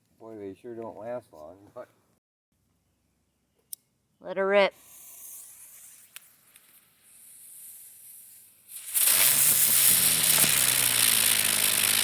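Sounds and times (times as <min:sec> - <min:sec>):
spinning ground firework hissing: 0:04.8 - 0:12.0.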